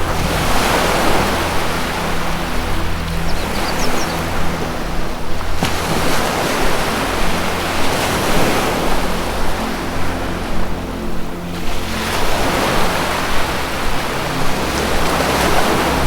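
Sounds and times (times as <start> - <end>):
low music drone: 0.0 - 16.0
ocean surf washing in: 0.0 - 16.0
high bird chirps: 3.2 - 4.5.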